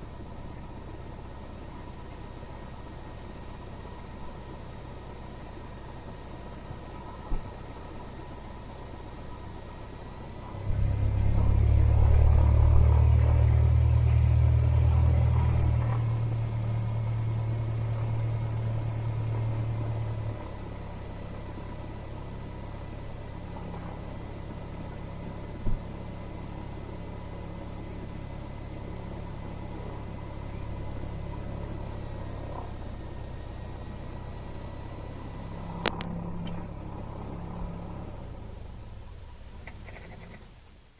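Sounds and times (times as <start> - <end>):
light aircraft engine humming: 0.0 - 40.4.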